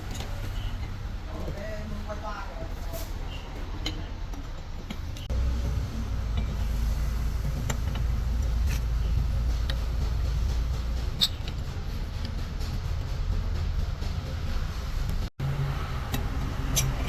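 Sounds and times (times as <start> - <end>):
motor running low rumble: 5.3 - 17.0.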